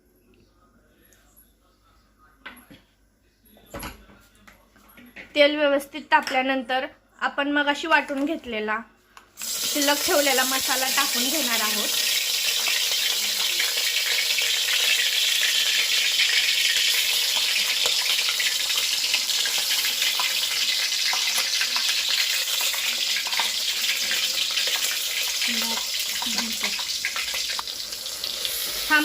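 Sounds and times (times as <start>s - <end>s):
paste sizzling in hot oil: 9.4s - 29.0s.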